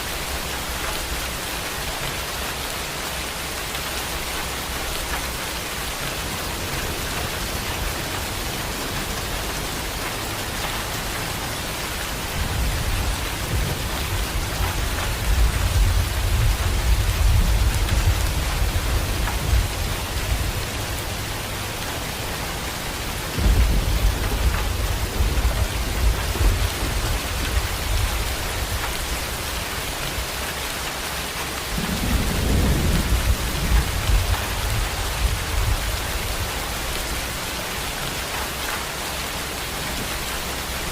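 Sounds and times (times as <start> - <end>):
heavy rain pouring: 0.0 - 40.9
thunder rolling: 23.3 - 28.8, 31.8 - 36.7.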